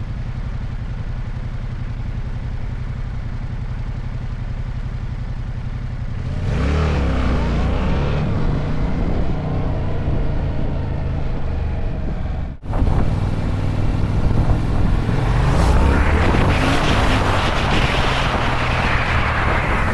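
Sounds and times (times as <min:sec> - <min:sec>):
motorcycle engine accelerating: 0:00.1 - 0:19.9
wind noise: 0:07.8 - 0:19.9.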